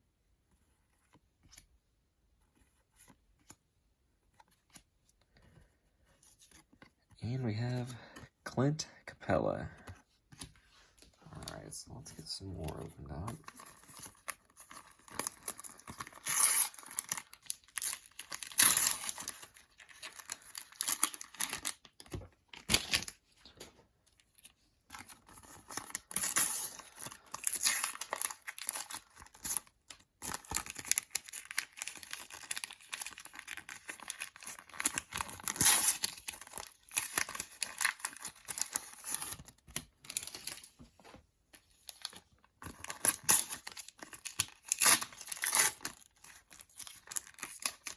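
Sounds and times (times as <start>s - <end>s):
sticker packets tearing: 12.6s - 22.0s, 25.2s - 40.6s, 42.6s - 47.9s
wrappers crinkling: 13.4s - 23.1s, 25.3s - 40.6s, 41.8s - 47.9s.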